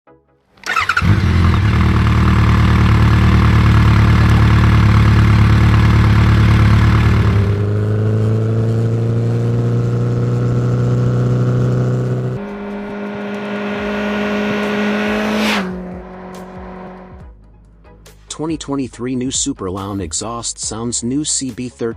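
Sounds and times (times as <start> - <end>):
motorcycle engine exhaust: 0.6 - 17.2.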